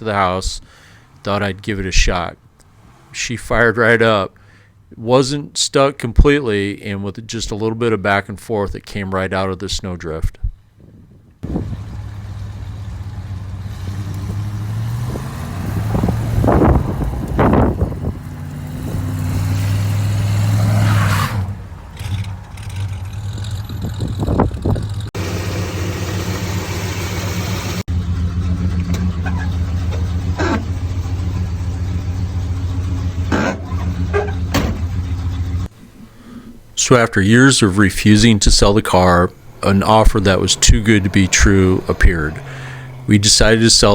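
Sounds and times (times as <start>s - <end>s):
car engine revving: 2.5s - 3.8s, 11.4s - 35.7s, 37.7s - 43.9s.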